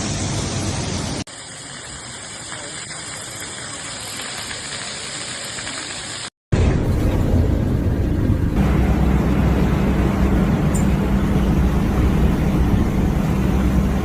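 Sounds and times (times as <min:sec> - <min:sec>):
water rushing: 0:00.0 - 0:14.0
deep rumbling noise: 0:06.5 - 0:14.0.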